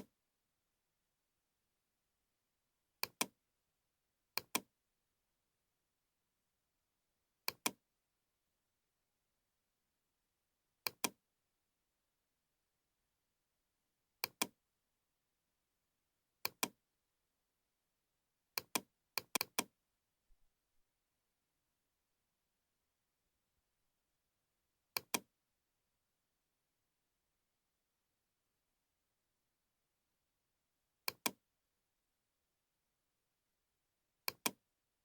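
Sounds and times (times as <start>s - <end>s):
computer mouse clicking: 4.4s - 4.6s, 7.5s - 7.8s, 10.9s - 11.2s, 14.2s - 14.5s, 16.5s - 16.8s, 18.6s - 19.7s, 25.0s - 25.2s, 31.1s - 31.4s, 34.3s - 34.6s.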